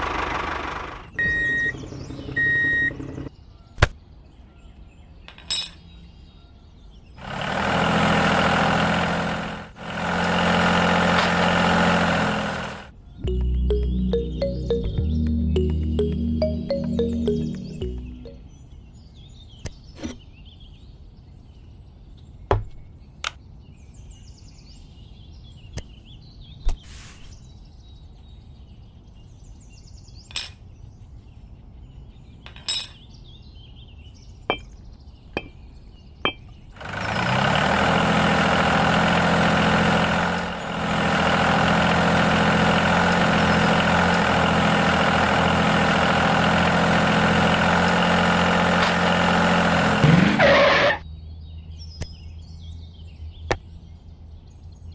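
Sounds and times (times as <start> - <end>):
birds chirping: 0.0 - 7.3, 12.9 - 37.2
parts knocking and clinking: 32.5 - 33.0, 34.5 - 34.8, 35.4 - 35.7, 36.3 - 36.5.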